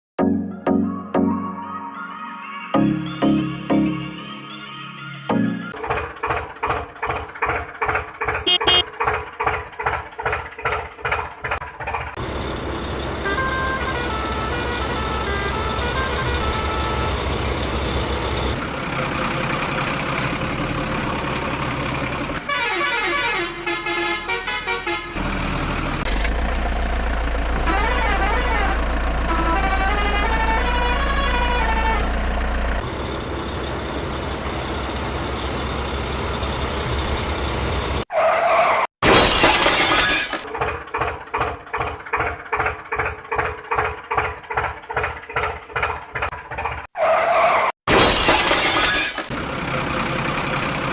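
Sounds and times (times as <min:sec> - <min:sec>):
horns honking: 0:08.4 - 0:09.0, 0:13.2 - 0:17.7, 0:22.4 - 0:25.3, 0:27.4 - 0:32.8.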